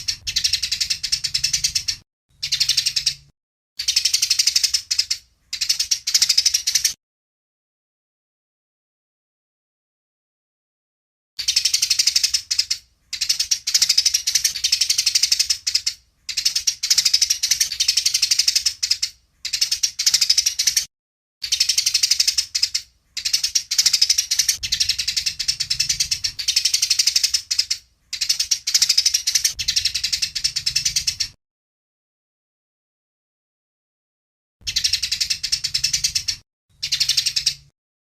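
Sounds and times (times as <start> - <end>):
sparrows chattering: 0.0 - 7.0, 11.4 - 31.4, 34.6 - 37.7.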